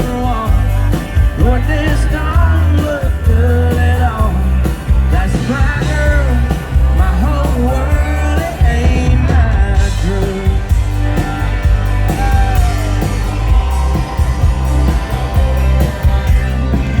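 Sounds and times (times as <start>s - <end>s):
country rock band playing: 0.0s - 17.0s.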